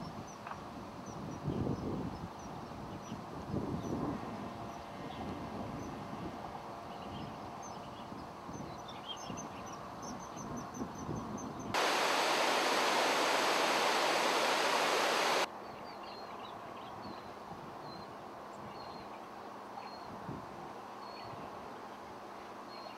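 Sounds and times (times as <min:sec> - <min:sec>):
outdoor background noise: 0:00.0 - 0:22.9
loud steady hiss: 0:11.8 - 0:15.5.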